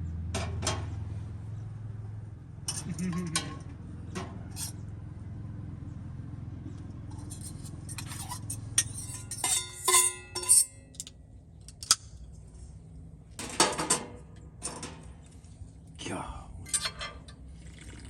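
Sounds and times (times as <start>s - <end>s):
knife and fork scraping a dish: 4.6s - 4.8s, 7.2s - 10.8s
sharp ringing clinks: 7.2s - 11.0s.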